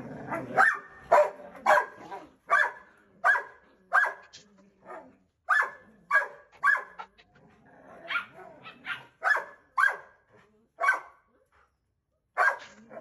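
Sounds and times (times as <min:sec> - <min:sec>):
dog barking: 0:00.4 - 0:04.3, 0:04.9 - 0:07.1, 0:08.1 - 0:10.2, 0:10.8 - 0:11.2, 0:12.4 - 0:12.8.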